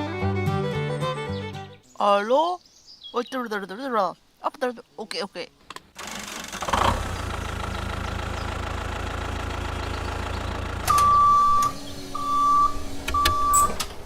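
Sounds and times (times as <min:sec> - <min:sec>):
long high beeps: 0:10.9 - 0:13.7.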